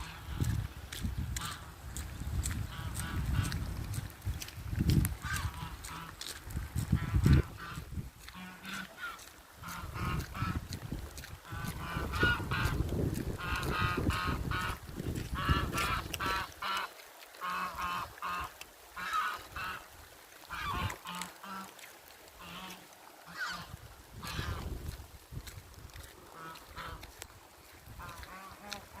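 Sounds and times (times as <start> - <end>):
geese honking: 0.0 - 0.5, 5.2 - 6.2, 7.0 - 10.7, 11.4 - 12.8, 13.4 - 14.8, 15.4 - 19.8, 20.5 - 21.8, 22.4 - 24.6, 26.3 - 27.1, 28.0 - 29.0.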